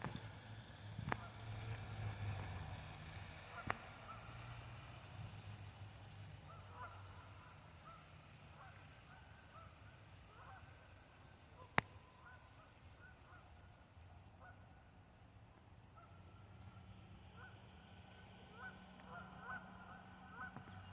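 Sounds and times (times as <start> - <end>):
geese honking: 10.3 - 10.7, 17.3 - 20.9.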